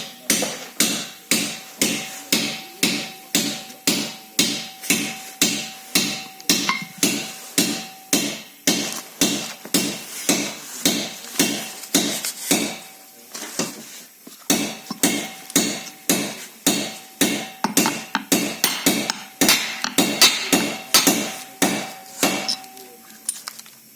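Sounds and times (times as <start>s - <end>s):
hammer blows on metal: 0.0s - 12.9s.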